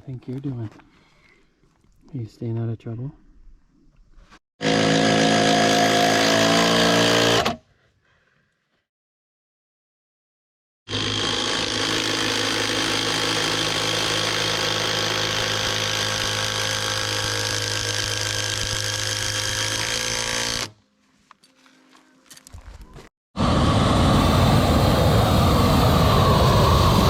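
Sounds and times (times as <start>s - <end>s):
power tool running: 4.6s - 7.6s, 10.9s - 20.8s.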